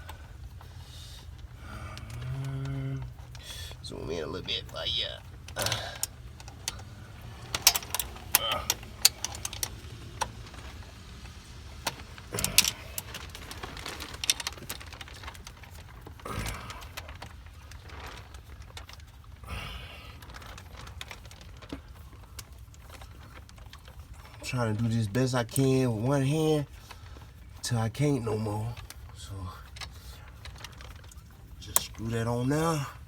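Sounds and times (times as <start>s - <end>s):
steady low hum: 0.0s - 33.0s
metallic clicks of hand tools: 5.6s - 10.4s, 11.8s - 13.4s.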